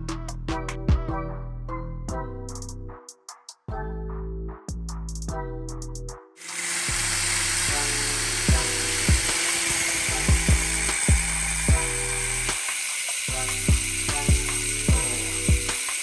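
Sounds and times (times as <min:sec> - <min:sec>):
background music with steady beat: 0:00.0 - 0:16.0
power tool whirring: 0:06.4 - 0:16.0.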